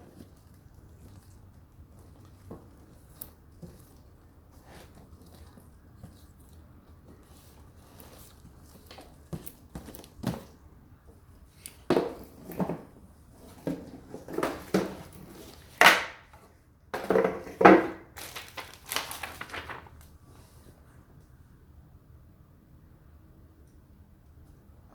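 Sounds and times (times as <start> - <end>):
packaging crinkling: 18.1 - 20.2.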